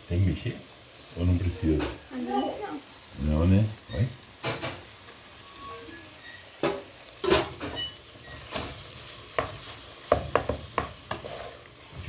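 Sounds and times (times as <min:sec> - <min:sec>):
food sizzling in a frying pan: 0:00.0 - 0:12.0
utensil knocking and scraping pan: 0:06.6 - 0:11.7.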